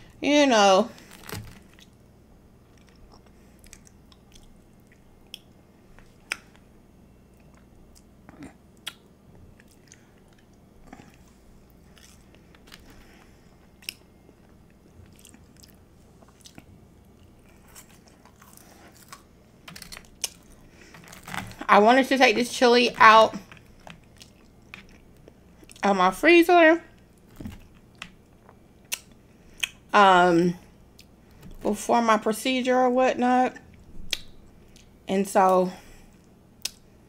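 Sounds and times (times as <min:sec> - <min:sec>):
chewing and mouth sounds: 0:02.7 - 0:05.6, 0:07.3 - 0:12.9, 0:13.6 - 0:21.4, 0:23.4 - 0:25.8.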